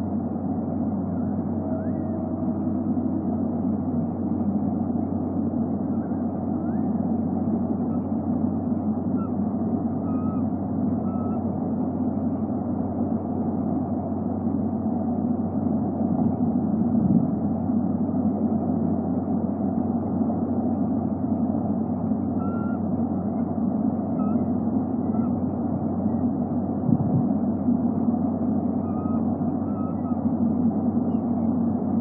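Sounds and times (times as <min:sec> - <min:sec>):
low rumbling background noise: 0:00.0 - 0:32.0
faint high bird chirps: 0:01.6 - 0:02.3, 0:09.1 - 0:09.4, 0:10.0 - 0:11.4, 0:22.4 - 0:22.9, 0:24.1 - 0:25.5, 0:28.8 - 0:30.2.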